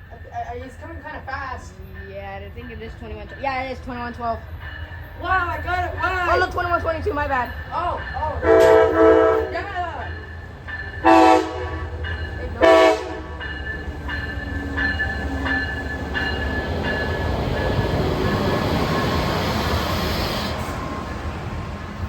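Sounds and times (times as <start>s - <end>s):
train rumbling past: 0.0s - 22.0s
train horn blasts: 8.4s - 9.7s, 11.0s - 12.0s, 12.6s - 13.4s.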